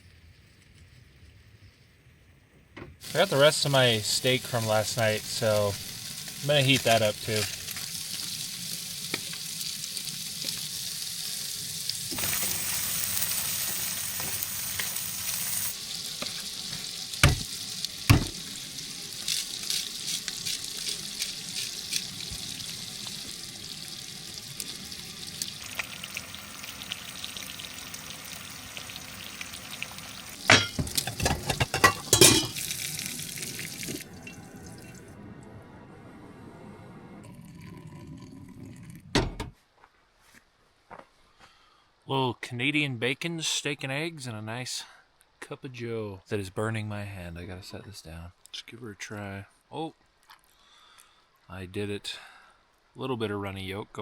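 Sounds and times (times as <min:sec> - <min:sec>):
meat sizzling in a pan: 0:03.0 - 0:34.0
sharp knocks: 0:17.2 - 0:17.5, 0:18.1 - 0:18.4.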